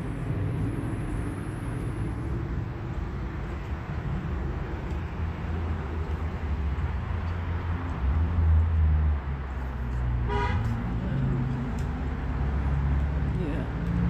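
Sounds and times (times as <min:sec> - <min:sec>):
road traffic rumble: 0:00.0 - 0:14.0
vehicle passing: 0:00.0 - 0:14.0
car horn toot: 0:10.2 - 0:10.7.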